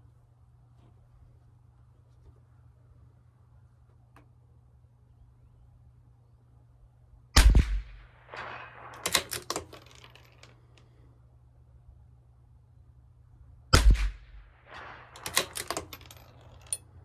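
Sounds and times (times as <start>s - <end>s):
rifle shot: 7.4s - 10.1s, 13.7s - 16.3s
rifle bolt clicking: 8.4s - 10.5s, 14.8s - 16.6s.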